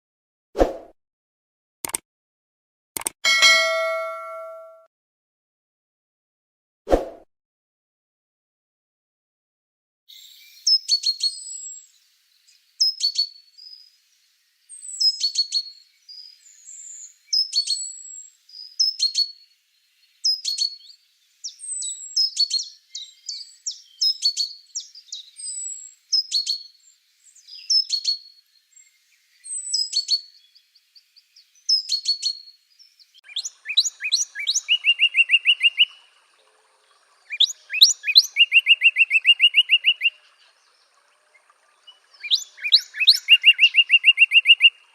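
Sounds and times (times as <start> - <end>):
songbirds singing: 10.1 - 44.9.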